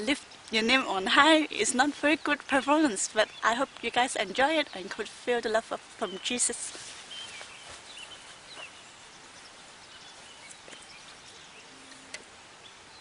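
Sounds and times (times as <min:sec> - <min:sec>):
faint bird chirps: 0:05.9 - 0:13.0.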